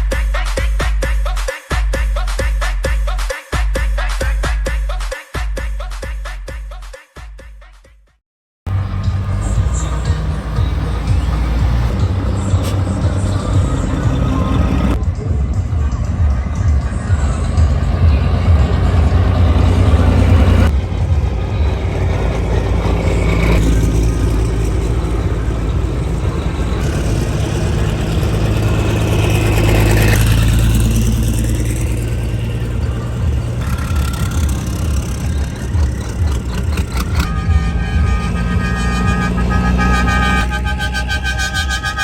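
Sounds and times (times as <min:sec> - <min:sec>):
diesel truck engines running: 0:08.7 - 0:42.0.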